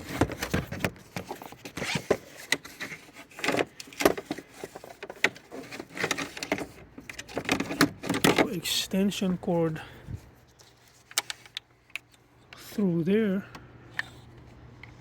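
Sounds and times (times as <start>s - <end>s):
cord scraping through plastic trim: 0.0s - 8.3s.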